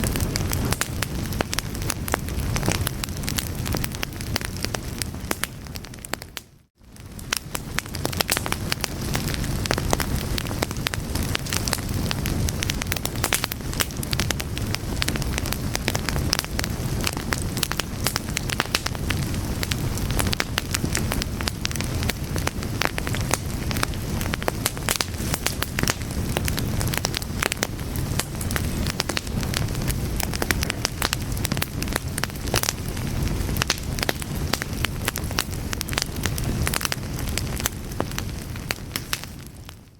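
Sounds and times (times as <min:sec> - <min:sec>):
burning wood crackling and popping: 0:00.0 - 0:39.9
fire burning with low rumble: 0:00.0 - 0:39.9.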